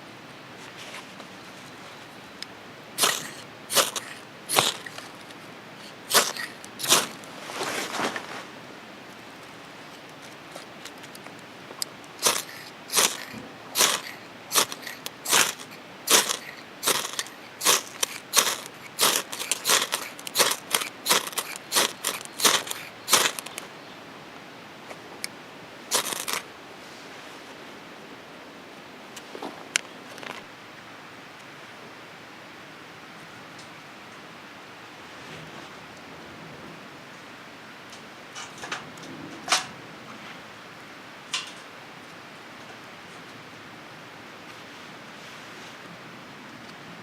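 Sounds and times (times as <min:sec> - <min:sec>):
short crunching strokes: 0:03.0 - 0:08.6, 0:12.1 - 0:23.7, 0:25.9 - 0:26.5.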